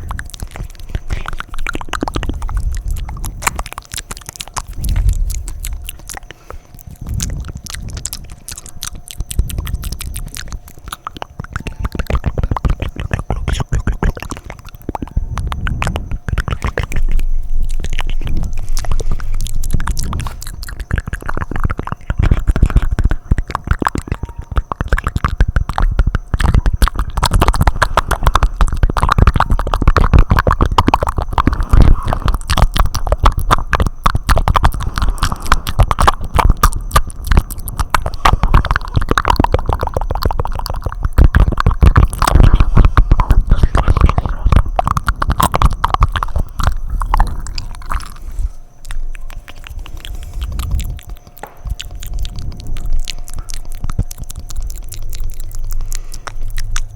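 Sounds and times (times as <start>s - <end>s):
rapid wet lip smacks: 0.0s - 56.9s
tongue clicks and flutters: 0.0s - 56.9s.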